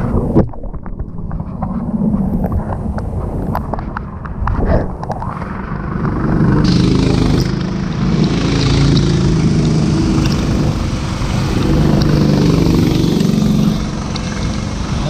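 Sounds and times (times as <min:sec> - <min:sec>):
go-kart engines running hard: 0:05.5 - 0:15.0.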